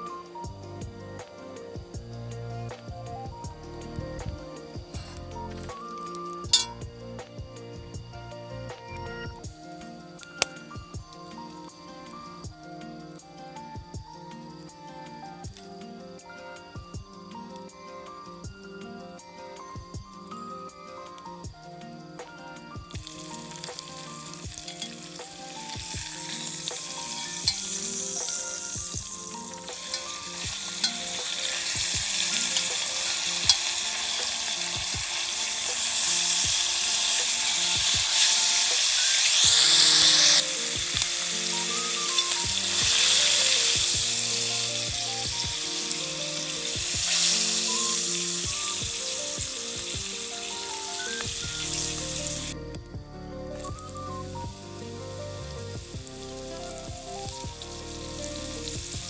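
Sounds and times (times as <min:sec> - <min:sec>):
food sizzling in a pan: 0:00.0 - 0:52.8, 0:53.6 - 0:59.0
soft background music: 0:00.0 - 0:59.0.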